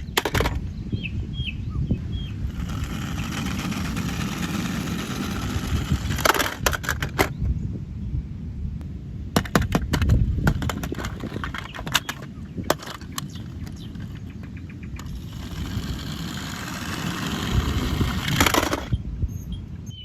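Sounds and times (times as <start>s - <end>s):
toy wheels rolling and scraping: 0.0s - 0.6s, 2.3s - 7.3s, 9.4s - 19.0s
plastic toys clicking and knocking: 2.6s - 7.3s, 9.4s - 18.9s.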